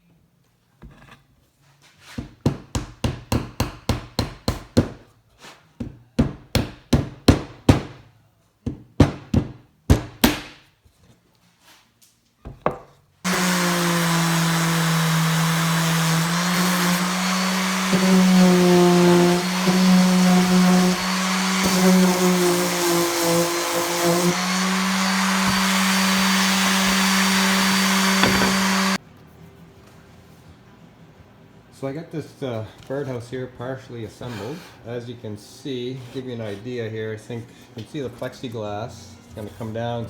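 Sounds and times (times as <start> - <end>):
electric power tool humming: 13.3 - 29.0
hammer driving nails into wood: 28.1 - 28.8.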